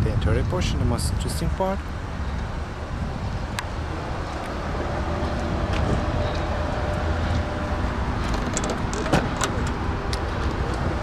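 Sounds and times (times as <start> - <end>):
low vehicle rumble: 1.8 - 11.0.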